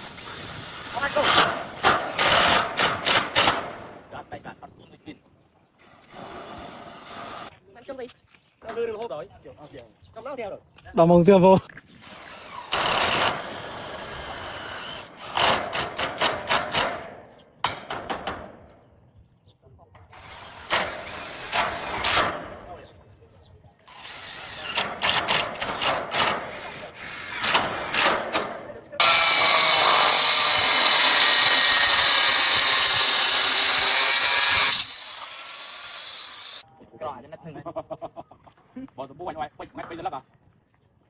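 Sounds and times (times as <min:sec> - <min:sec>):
power tool whining under load: 0:00.0 - 0:03.6, 0:12.0 - 0:16.9, 0:23.9 - 0:36.6.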